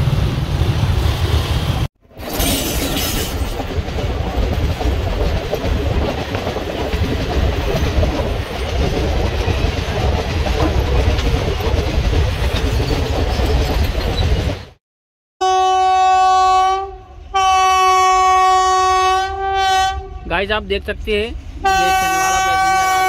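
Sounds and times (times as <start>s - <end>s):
train wheels rumbling and clattering: 0.0s - 14.8s.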